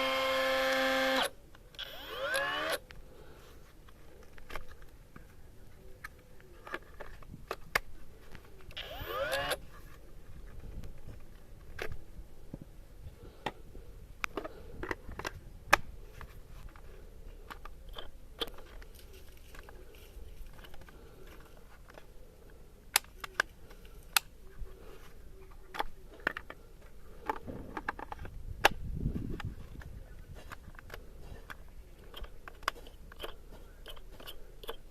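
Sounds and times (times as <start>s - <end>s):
small hard parts clicking: 30.5s - 34.9s.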